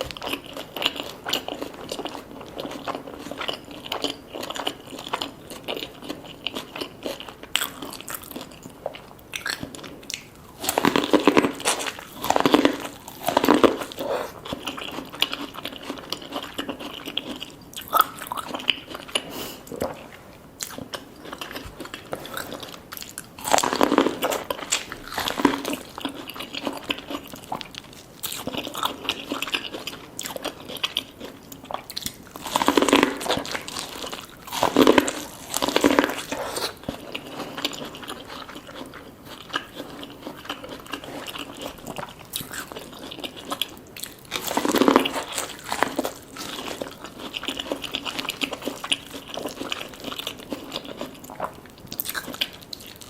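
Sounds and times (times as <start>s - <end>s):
person chewing food: 0.0s - 53.0s
crunchy bites: 20.6s - 53.0s.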